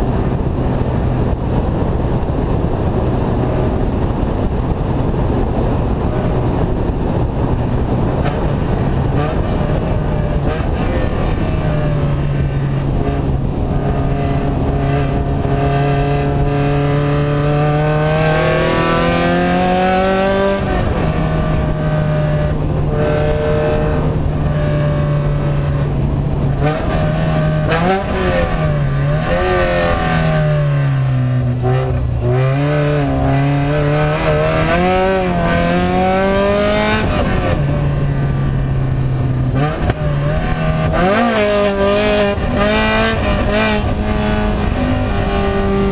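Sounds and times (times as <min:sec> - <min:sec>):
vehicle engine with open exhaust: 0:00.0 - 0:45.9.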